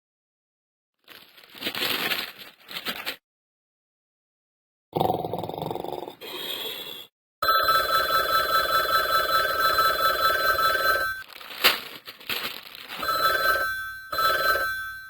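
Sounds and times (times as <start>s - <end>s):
electronic ringing tone: 7.4s - 11.2s, 13.0s - 15.0s.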